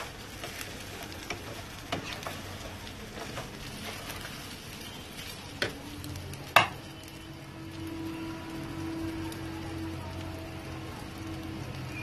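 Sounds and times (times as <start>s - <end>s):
wooden spoon stirring: 0.0s - 6.8s
grains sizzling in oil: 0.0s - 12.0s.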